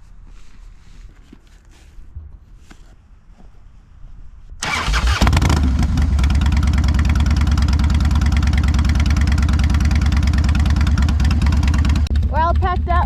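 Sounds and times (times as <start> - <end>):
motorcycle engine starting and idling: 4.6 - 13.0.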